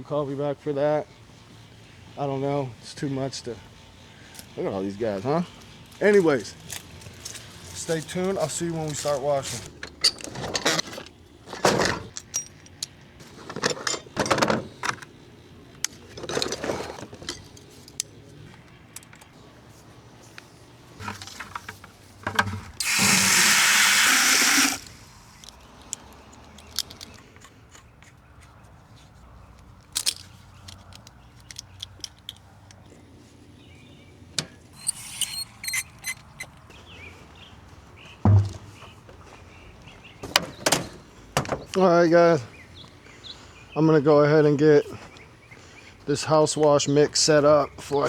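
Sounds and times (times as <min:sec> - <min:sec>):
equipment knocks and rattles: 0:38.2 - 0:38.9, 0:40.2 - 0:41.8.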